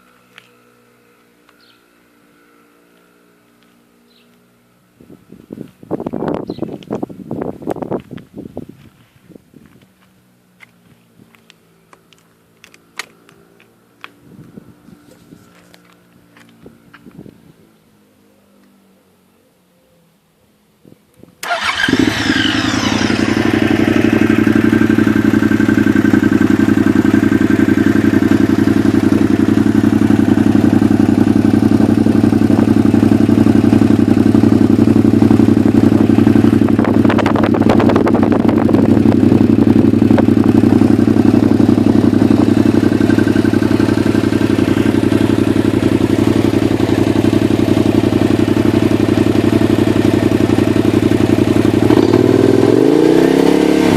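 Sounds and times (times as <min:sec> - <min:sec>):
motorcycle engine starting and idling: 0:21.4 - 0:53.9.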